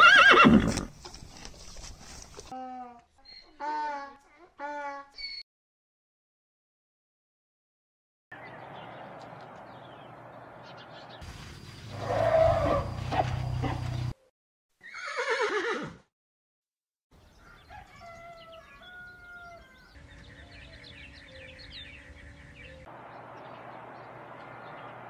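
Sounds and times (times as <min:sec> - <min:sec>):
horse whinny: 0:00.0 - 0:00.9, 0:12.0 - 0:13.0, 0:14.8 - 0:16.0
steady outdoor hiss: 0:08.4 - 0:14.1, 0:20.0 - 0:25.0
small birds chirping: 0:08.4 - 0:14.3, 0:17.2 - 0:25.0.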